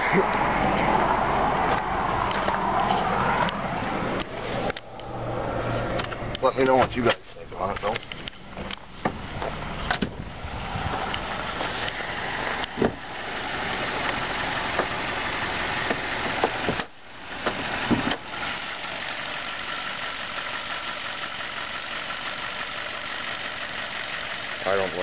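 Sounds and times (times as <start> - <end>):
car engine idling: 0.0 - 25.0
car hood knocks and clicks: 8.6 - 10.2, 12.7 - 13.0.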